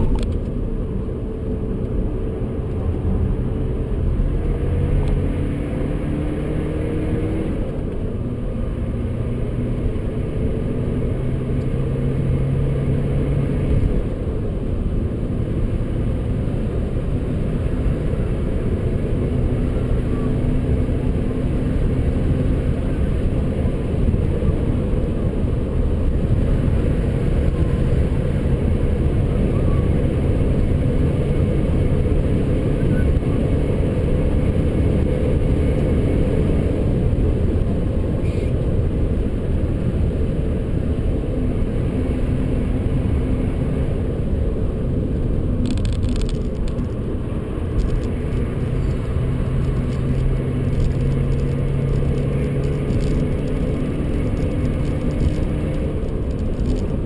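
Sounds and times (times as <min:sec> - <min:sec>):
diesel engine accelerating: 0:00.0 - 0:57.0
road and wind rumble: 0:00.0 - 0:57.0.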